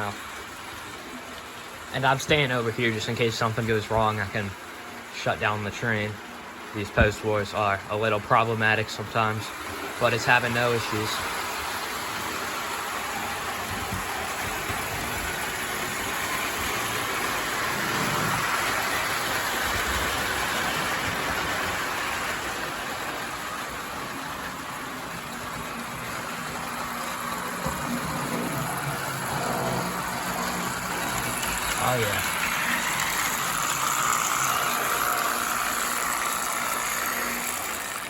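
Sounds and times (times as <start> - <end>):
toy train motor whirring: 10.0 - 24.2, 24.9 - 38.0.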